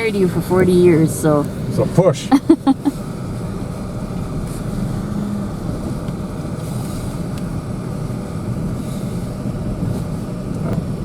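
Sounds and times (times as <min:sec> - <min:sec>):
vehicle engine and tyres running: 0:00.0 - 0:11.0.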